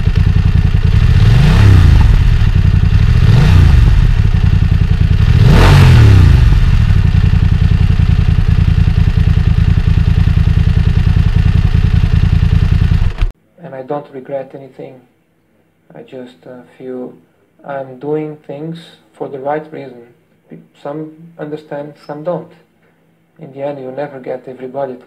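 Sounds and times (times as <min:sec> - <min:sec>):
engine throttle blips: 0:00.0 - 0:13.3
motorcycle engine idling: 0:00.0 - 0:13.3.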